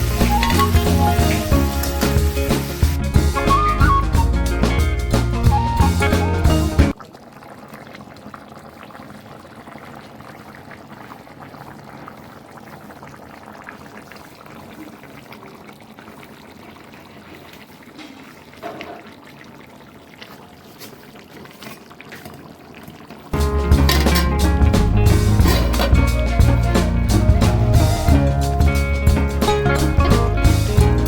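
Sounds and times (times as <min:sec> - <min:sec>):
water splash: 0:00.0 - 0:04.0
water pouring and trickling: 0:00.0 - 0:31.0.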